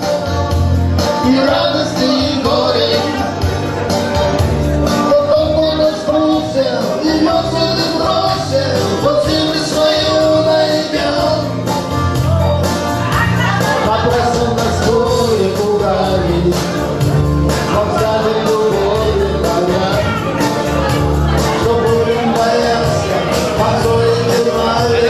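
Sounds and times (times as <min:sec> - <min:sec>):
instrumental accompaniment with beat: 0:00.0 - 0:25.0
man singing rock song: 0:00.8 - 0:25.0.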